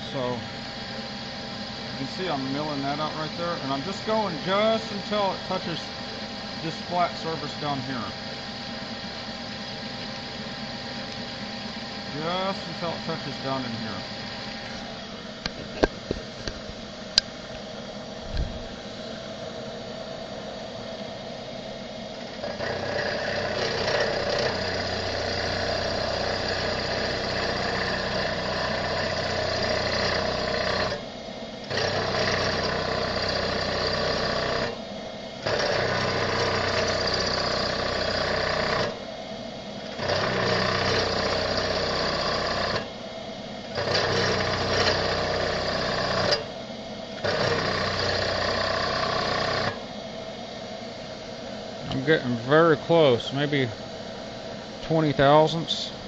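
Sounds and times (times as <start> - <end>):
milling machine cutting metal: 0.0 - 16.9, 22.3 - 39.1, 39.8 - 50.0
machine hum: 0.0 - 56.0.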